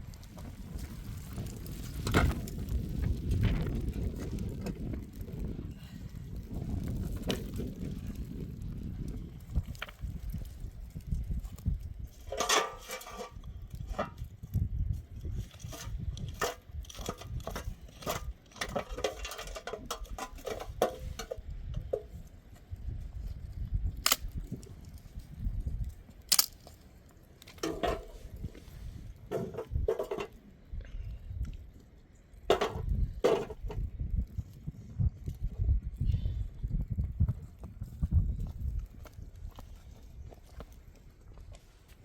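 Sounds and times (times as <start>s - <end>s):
objects being handled: 12.1s - 14.2s, 27.4s - 30.4s.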